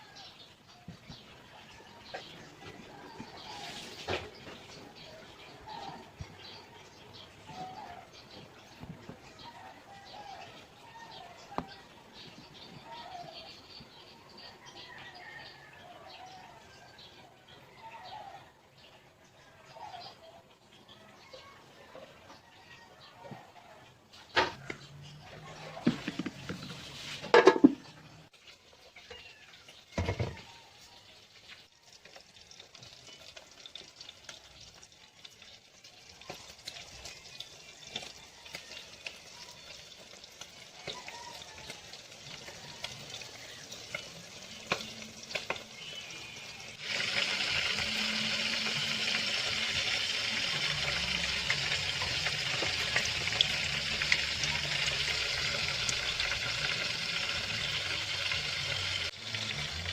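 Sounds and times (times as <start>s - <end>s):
dough deep-frying in hot oil: 0.0s - 59.9s
knocks and clatters: 25.8s - 28.0s.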